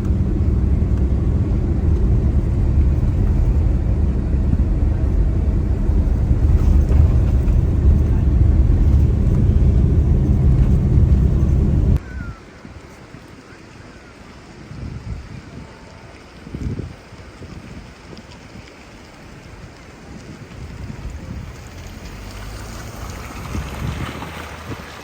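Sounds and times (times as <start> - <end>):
bus engine drone: 0.0 - 12.0, 18.6 - 25.0
road noise inside bus: 0.0 - 12.4, 18.2 - 25.0.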